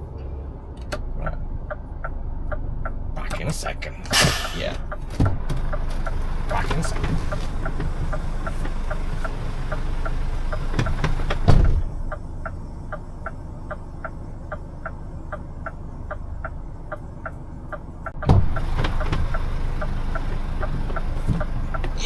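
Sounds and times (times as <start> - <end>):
diesel engine idling: 0.0 - 22.0
steady ticking: 1.2 - 18.7
truck door thumping shut: 4.0 - 5.4, 11.4 - 11.9, 18.2 - 18.9
truck door opening with a thud: 4.0 - 5.6, 10.8 - 12.0, 18.2 - 19.4.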